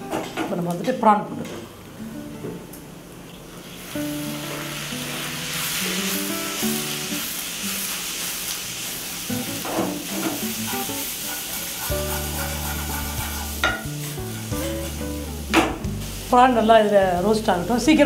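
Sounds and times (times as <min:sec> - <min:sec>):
prawns sizzling in hot oil: 0:03.1 - 0:18.0
wooden spatula scraping pan: 0:10.2 - 0:15.1.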